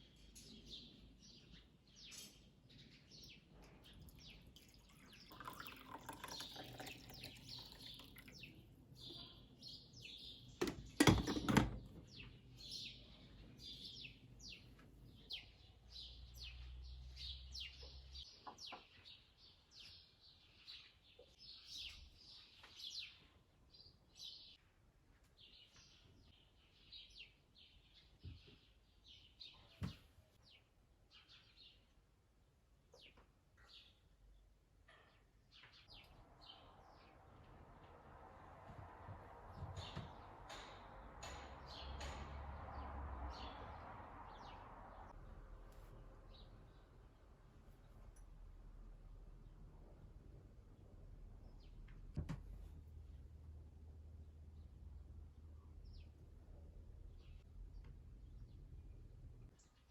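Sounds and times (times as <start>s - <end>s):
small birds chirping: 0.0s - 38.0s, 39.4s - 50.0s, 50.6s - 59.9s
sharp loud knocks: 39.5s - 42.9s.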